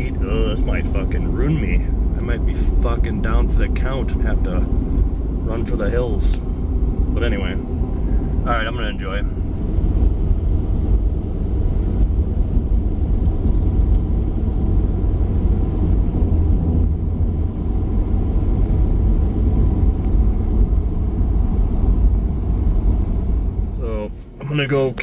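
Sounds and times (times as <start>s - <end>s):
pickup engine and road noise: 0.0s - 25.0s.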